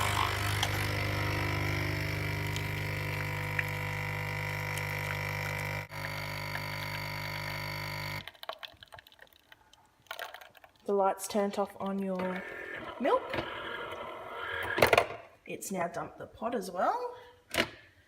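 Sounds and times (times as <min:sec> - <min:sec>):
capsule machine pump buzzing: 0:00.0 - 0:08.2.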